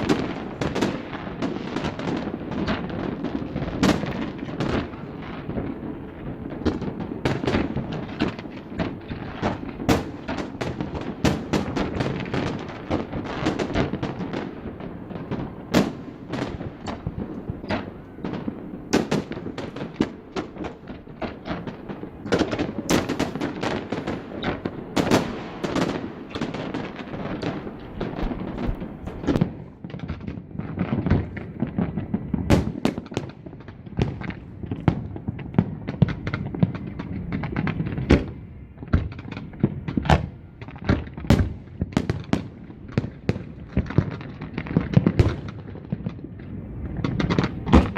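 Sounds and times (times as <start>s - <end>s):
fireworks bangs and crackling: 0.0s - 47.9s
loud firework booms: 0.0s - 47.9s.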